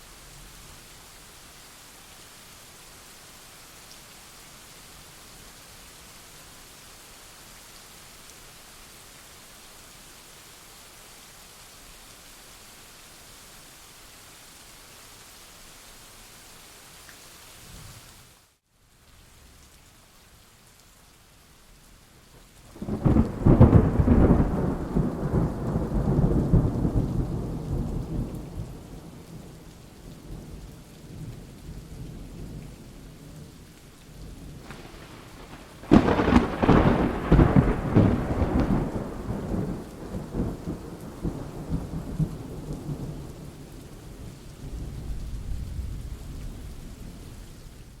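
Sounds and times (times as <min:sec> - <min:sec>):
steady rain: 0:00.0 - 0:48.0
loud thunder claps: 0:34.6 - 0:41.8
steady hiss: 0:34.6 - 0:43.2.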